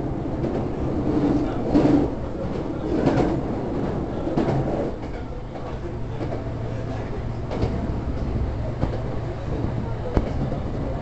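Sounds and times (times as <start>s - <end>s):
train wheels rumbling on rails: 0.0s - 11.0s
rail joint clicks: 0.3s - 10.9s.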